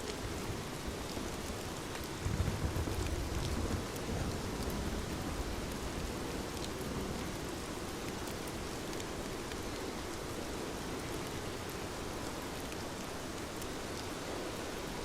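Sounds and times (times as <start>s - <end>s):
heavy rain: 0.0s - 15.0s
low thunder rumble: 2.2s - 5.7s.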